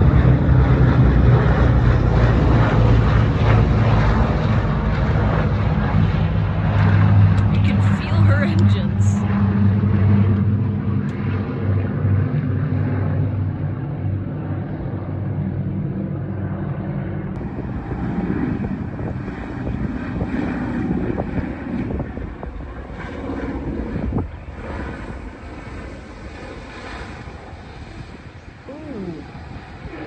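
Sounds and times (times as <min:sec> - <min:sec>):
propeller plane engines roaring: 0:00.0 - 0:30.0.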